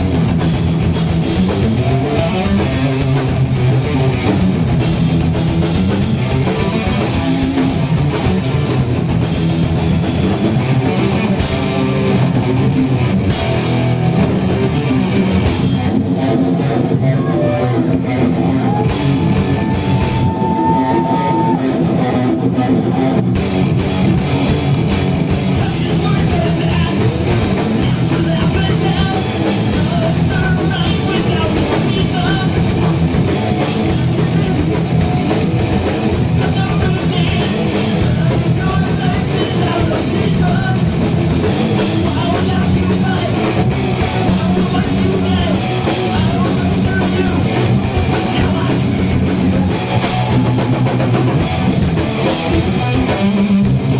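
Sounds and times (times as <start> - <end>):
drum kit with cymbals: 0.0 - 16.2, 23.2 - 53.9
bass guitar: 0.0 - 53.9
distorted electric guitars: 0.0 - 53.9.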